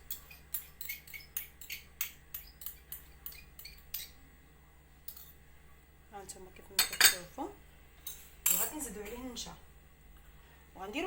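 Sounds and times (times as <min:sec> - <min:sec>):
utensil clinking against dish: 0:00.0 - 0:04.2, 0:06.8 - 0:07.2.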